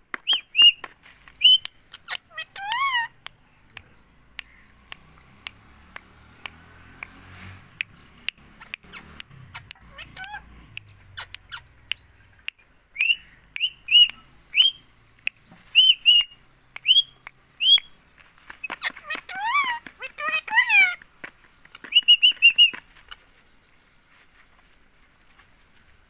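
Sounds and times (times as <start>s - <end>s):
sharp clicks: 0.1s - 17.9s
parakeet chirping: 0.2s - 0.8s, 1.4s - 6.1s, 6.8s - 18.0s, 18.6s - 21.0s.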